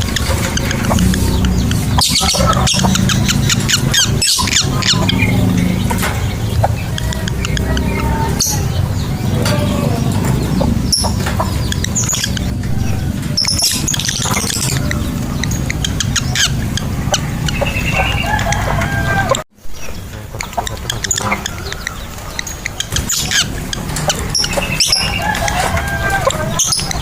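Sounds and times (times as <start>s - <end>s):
steady low hum: 0.0s - 19.4s
lovebirds chirping and trilling: 0.0s - 27.0s.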